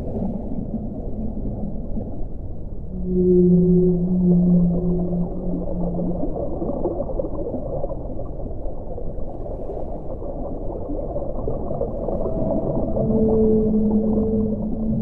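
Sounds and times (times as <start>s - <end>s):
underwater bubbling rush: 0.0s - 15.0s
long low call: 0.2s - 7.6s, 12.2s - 15.0s.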